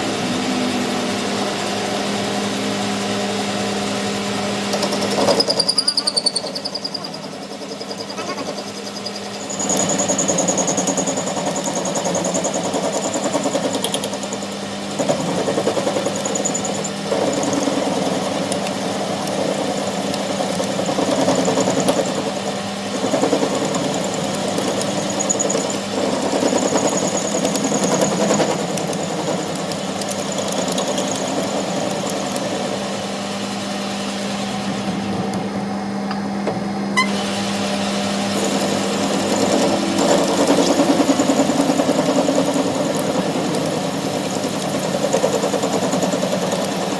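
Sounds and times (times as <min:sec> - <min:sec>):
machine humming: 0:14.2 - 0:46.9.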